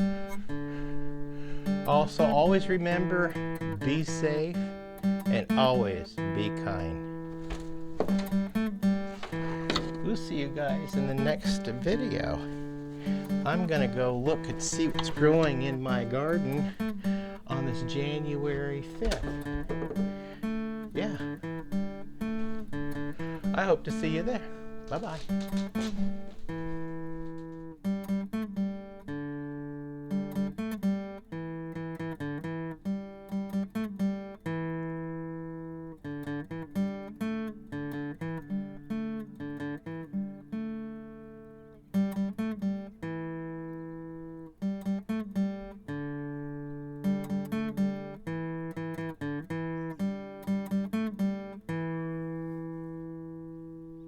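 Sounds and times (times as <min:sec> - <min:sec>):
acoustic guitar music: 0:00.0 - 0:54.0.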